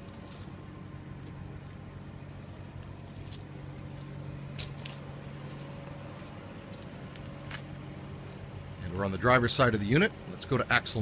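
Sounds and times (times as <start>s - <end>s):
footsteps scuffing: 0.0s - 0.6s, 2.2s - 8.5s
vehicle engine idling: 0.0s - 11.0s.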